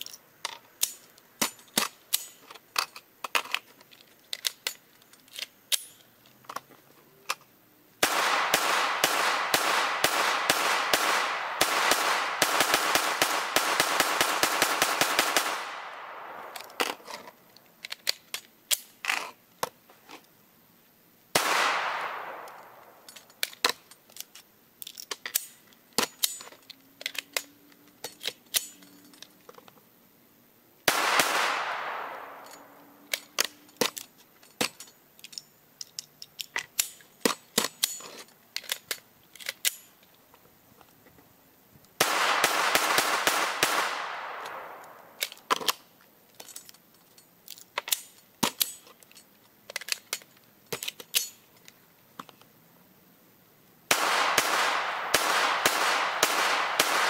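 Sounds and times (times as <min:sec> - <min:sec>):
metallic clicks of rifle handling: 0:00.0 - 0:07.5, 0:15.7 - 0:20.4, 0:21.6 - 0:29.9, 0:31.5 - 0:42.0, 0:43.9 - 0:52.6
rifle firing rapidly: 0:08.0 - 0:16.5, 0:21.4 - 0:22.8, 0:30.9 - 0:32.4, 0:42.0 - 0:44.8, 0:53.9 - 0:57.0.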